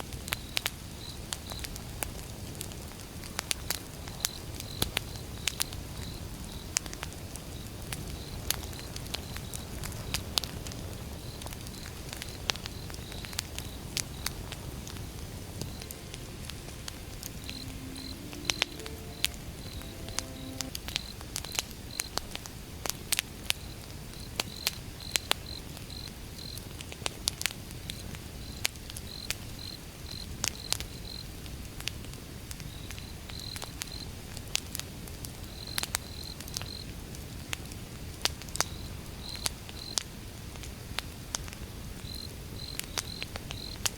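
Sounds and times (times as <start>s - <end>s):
cricket chirping: 11.2s - 21.1s, 42.0s - 43.8s.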